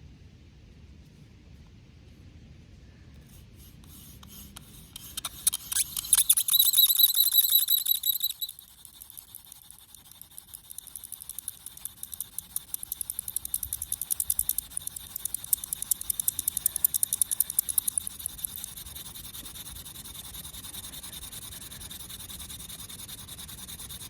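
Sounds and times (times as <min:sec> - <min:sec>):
wooden drill squeaking and scraping: 0:05.1 - 0:09.4.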